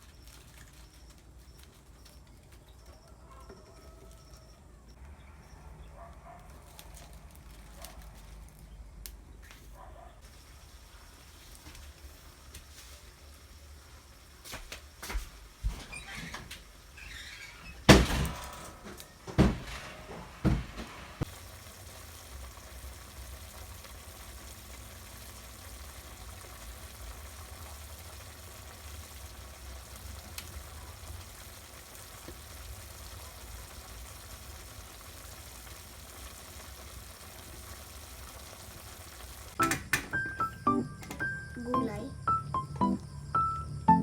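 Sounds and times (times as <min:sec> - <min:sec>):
loud thumps: 0:17.9 - 0:21.3.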